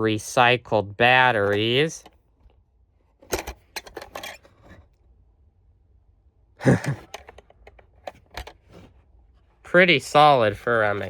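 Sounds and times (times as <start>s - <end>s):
person sighing: 6.6s - 7.2s.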